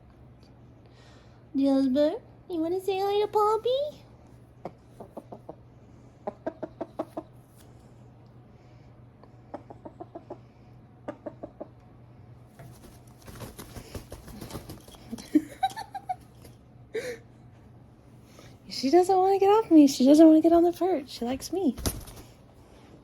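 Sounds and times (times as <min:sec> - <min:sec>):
hen clucking: 0:04.9 - 0:05.6, 0:06.2 - 0:07.4, 0:09.5 - 0:10.4, 0:11.0 - 0:11.8
rustling: 0:12.6 - 0:15.2.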